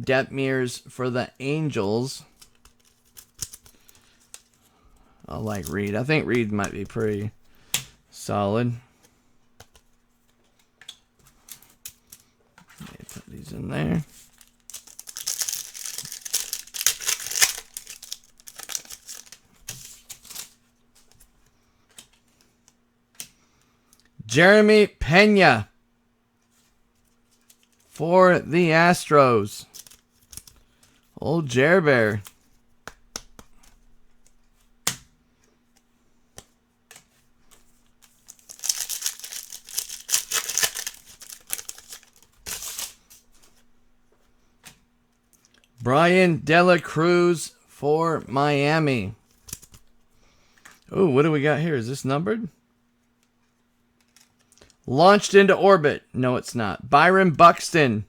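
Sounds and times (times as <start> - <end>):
faint electrical hum: 0.0 - 58.0
foil wrapper tearing and crinkling: 14.1 - 20.6, 38.0 - 43.2
cards clicking: 14.5 - 20.4, 38.2 - 42.9.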